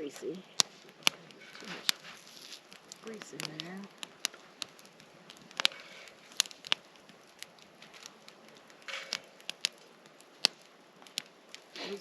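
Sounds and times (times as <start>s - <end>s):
faint sizzle: 0.0s - 12.0s
grease popping and spitting: 0.4s - 12.0s.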